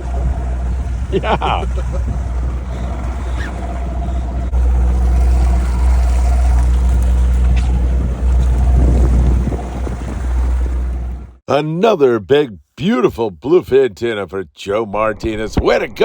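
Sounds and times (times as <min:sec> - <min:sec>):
boat engine humming: 0:00.0 - 0:11.4
water noise: 0:00.0 - 0:11.4
wind: 0:00.0 - 0:16.0.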